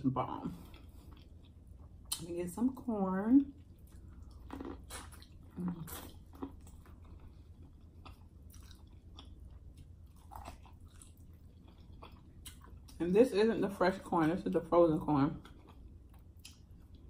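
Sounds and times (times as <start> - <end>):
person biting and chewing corn: 3.8 - 13.0.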